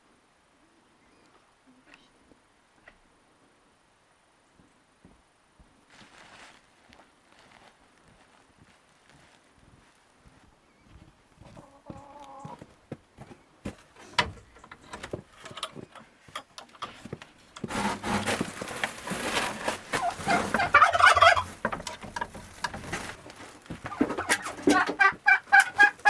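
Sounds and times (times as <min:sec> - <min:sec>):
poultry flock calling: 0:19.9 - 0:26.0.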